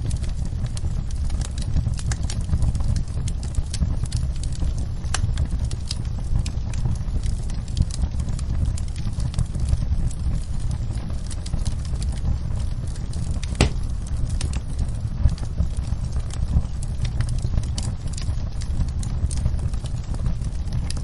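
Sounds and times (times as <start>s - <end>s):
low rumble of flames: 0.0s - 21.0s
wood fire crackling: 0.0s - 21.0s
sharp loud pop of fire: 13.5s - 13.9s.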